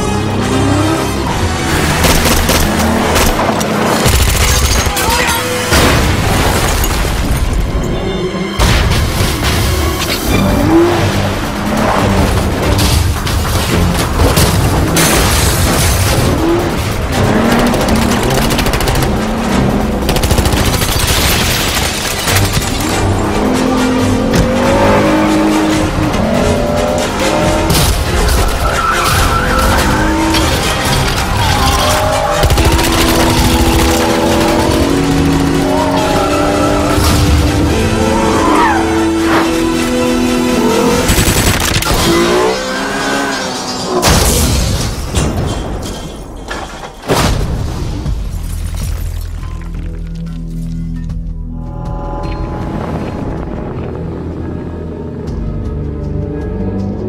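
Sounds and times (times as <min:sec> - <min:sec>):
car engine noise: 0:00.0 - 0:06.2, 0:09.4 - 0:45.0
film music score: 0:00.0 - 0:57.0
tyres skidding: 0:09.2 - 0:44.3.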